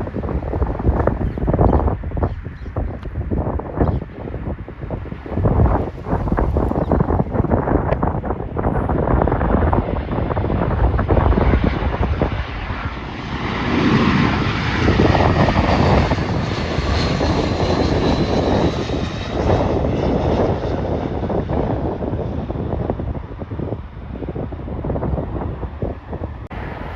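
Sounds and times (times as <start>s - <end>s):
jet airliner passing: 0.0s - 26.9s
wind buffeting microphone: 0.0s - 26.9s.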